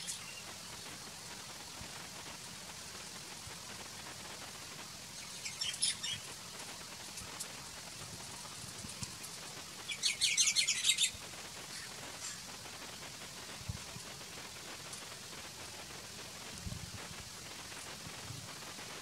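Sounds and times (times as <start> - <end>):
faint steady hiss: 0.0 - 19.0
bird chirping: 5.2 - 6.2, 9.9 - 12.4.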